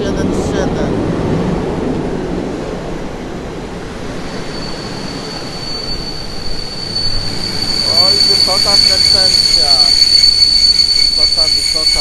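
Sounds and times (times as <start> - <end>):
train wheels rumbling on rail: 0.0 - 12.0
high brake squeal: 4.0 - 12.0.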